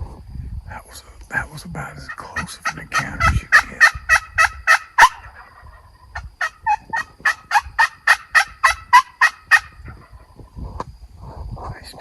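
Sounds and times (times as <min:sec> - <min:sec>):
wild turkeys calling: 0:01.9 - 0:10.4.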